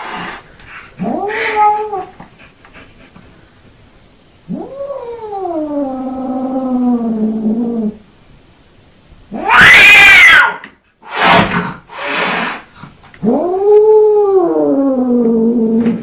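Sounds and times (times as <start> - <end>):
cat yowling: 1.0 - 2.2, 9.3 - 10.7.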